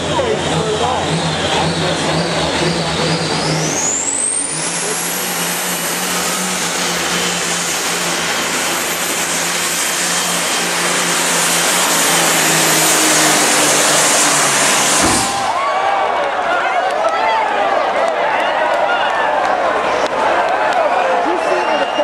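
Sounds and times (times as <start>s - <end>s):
high whine: 0.0s - 16.0s
diesel engine at full throttle: 0.0s - 16.8s.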